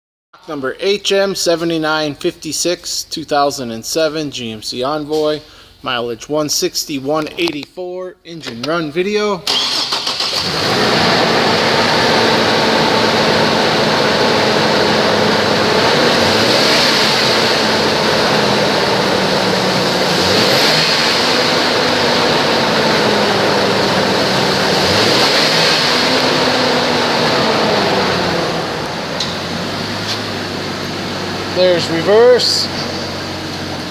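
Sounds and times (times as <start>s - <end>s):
car engine idling and revving: 9.5s - 33.9s.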